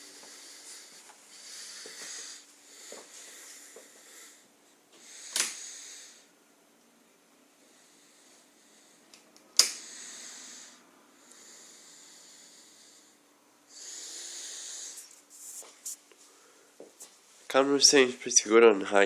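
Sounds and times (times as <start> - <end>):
hissing breaths into microphone: 13.8 - 16.0.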